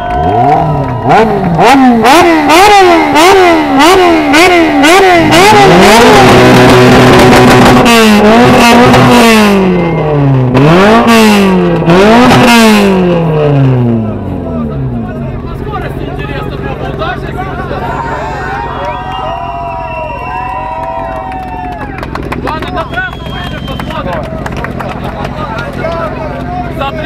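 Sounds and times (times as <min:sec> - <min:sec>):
engine revving hard: 0:00.0 - 0:15.0.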